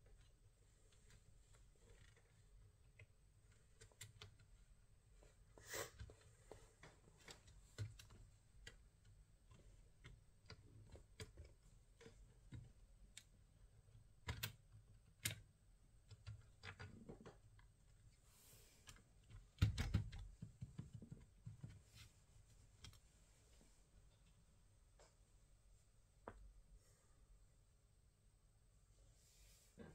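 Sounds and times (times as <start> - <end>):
small clicks and taps: 6.0 - 18.1, 18.8 - 22.1.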